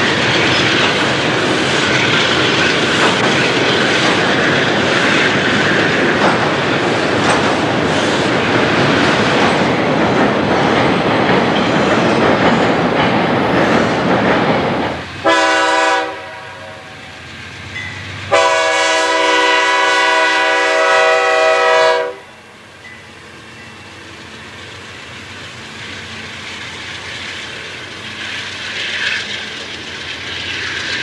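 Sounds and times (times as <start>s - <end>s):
wheels clicking over rail joints: 0.0s - 15.4s, 22.7s - 31.0s
diesel locomotive horn: 15.2s - 17.2s, 18.3s - 22.7s
freight cars rolling past: 22.4s - 31.0s.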